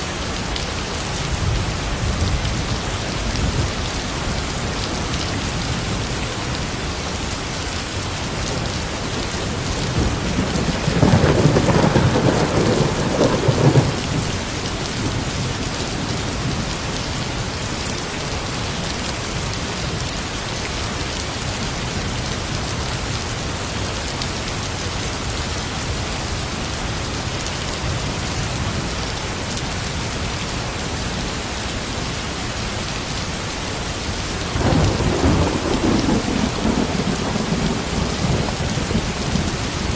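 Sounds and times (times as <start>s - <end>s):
steady rain falling: 0.0s - 39.9s
low rumble of thunder: 8.5s - 17.1s, 34.4s - 39.9s.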